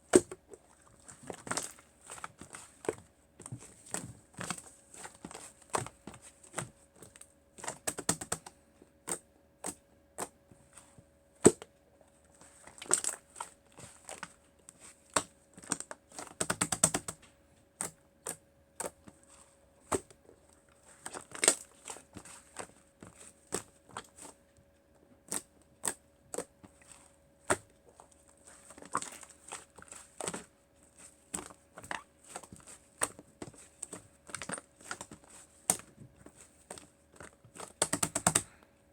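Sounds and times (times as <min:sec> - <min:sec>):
hands handling craft materials: 0:00.0 - 0:11.7, 0:25.2 - 0:38.6
faint steady hum: 0:00.0 - 0:38.9.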